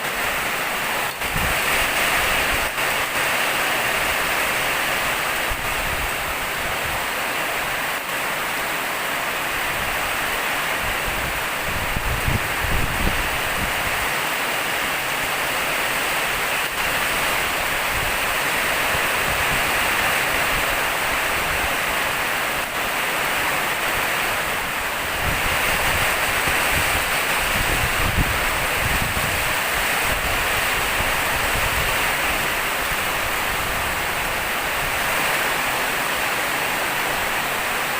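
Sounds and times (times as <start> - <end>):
heavy rain pouring: 0.0 - 37.9
wind buffeting microphone: 1.1 - 2.8, 9.6 - 14.1, 25.0 - 35.4.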